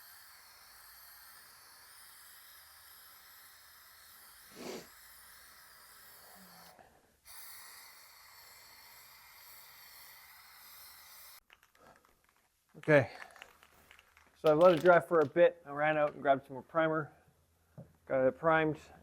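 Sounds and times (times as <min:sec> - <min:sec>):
sharp breath or sniff: 0:04.4 - 0:05.4.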